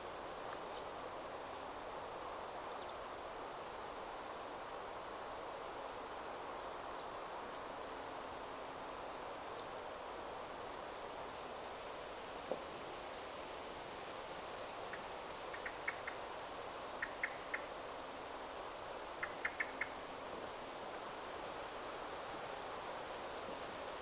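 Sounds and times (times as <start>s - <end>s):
wind rustling through trees: 0.0s - 24.0s
faint high-pitched ticking calls: 13.2s - 23.8s.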